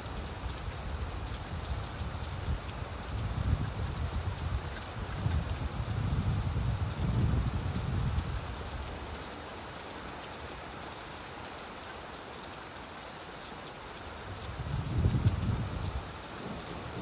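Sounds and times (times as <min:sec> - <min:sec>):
steady rain hiss: 0:00.0 - 0:17.0
low rumble of thunder: 0:14.4 - 0:17.0.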